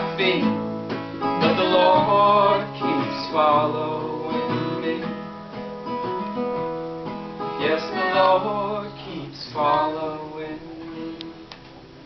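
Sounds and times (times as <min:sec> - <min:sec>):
acoustic guitar strumming: 0:00.0 - 0:12.0
person singing: 0:01.4 - 0:05.1, 0:07.6 - 0:11.8.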